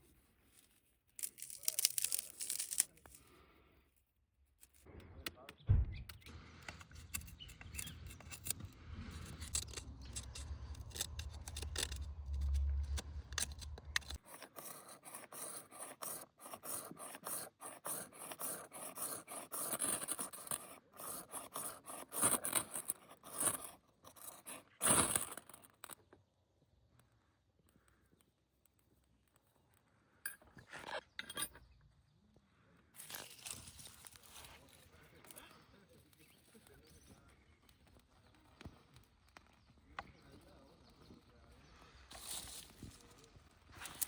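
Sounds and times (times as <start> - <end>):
scraping and scratching strokes: 0.0 - 3.4, 6.1 - 26.0, 41.7 - 44.0
low rumble: 8.6 - 14.2.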